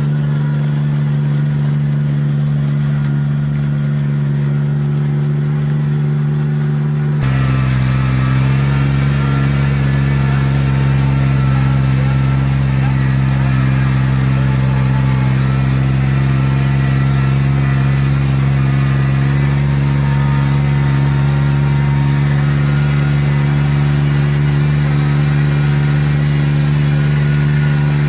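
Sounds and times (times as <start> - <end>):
engine humming steadily: 0.0 - 28.0.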